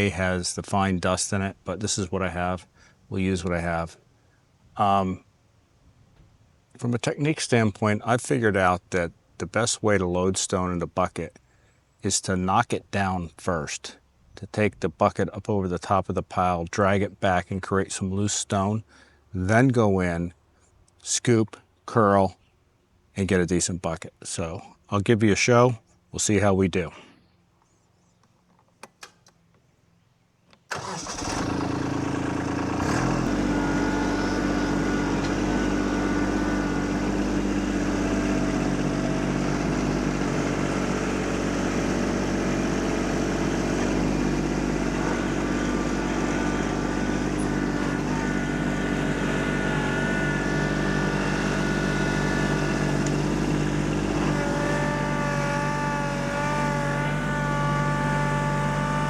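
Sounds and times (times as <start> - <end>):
tractor diesel engine running: 30.7 - 59.0.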